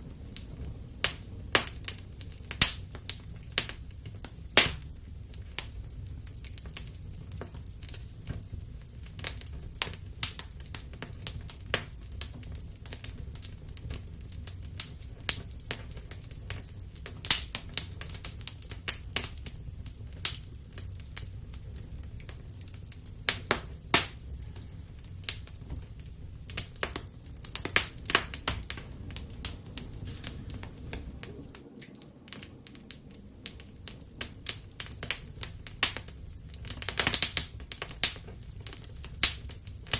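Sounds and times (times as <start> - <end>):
low steady rumble: 0.0 - 31.6
wood fire crackling: 0.0 - 39.9.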